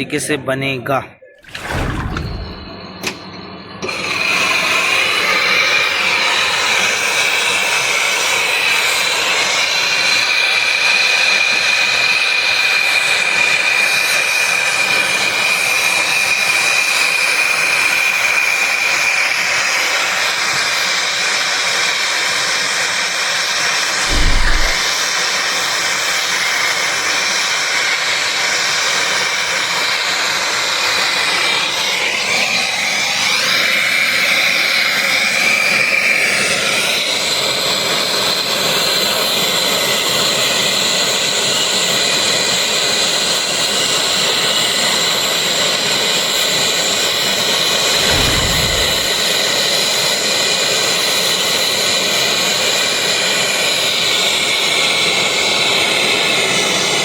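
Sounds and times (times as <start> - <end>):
short low bump: 1.4 - 2.8, 24.0 - 24.9, 47.9 - 49.3
torch flame hissing: 24.0 - 24.9, 47.8 - 49.3.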